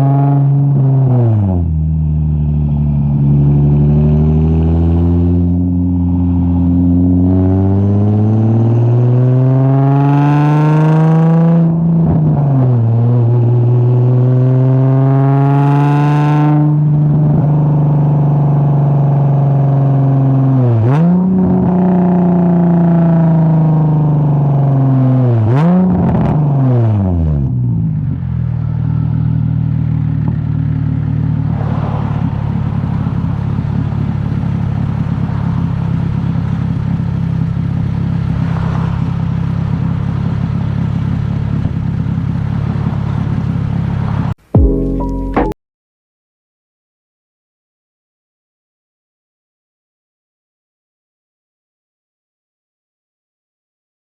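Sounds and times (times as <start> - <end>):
car exhaust accelerating hard: 15.2 - 45.3.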